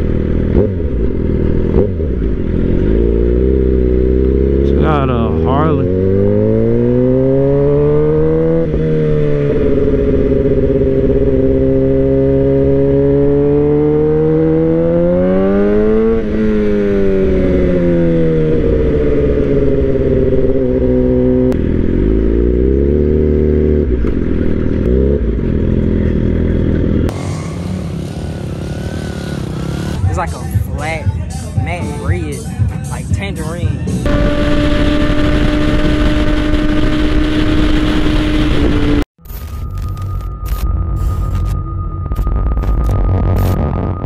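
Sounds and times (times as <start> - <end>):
motorcycle engine revving: 0.0 - 33.0, 33.6 - 39.1.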